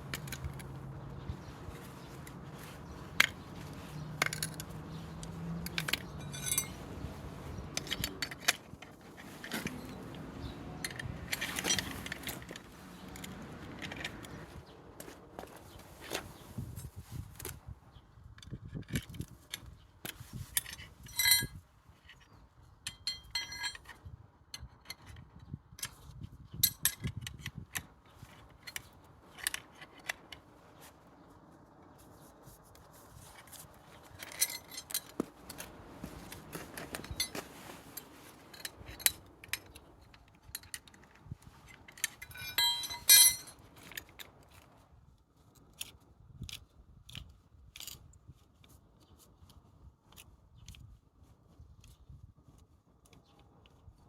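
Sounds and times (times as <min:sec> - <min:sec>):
metal tools clicking and scraping: 0:00.0 - 0:15.2, 0:18.4 - 0:30.5, 0:33.3 - 0:44.8
ringing metallic clinks: 0:05.8 - 0:06.8, 0:21.1 - 0:21.6, 0:22.9 - 0:23.9, 0:42.2 - 0:43.5.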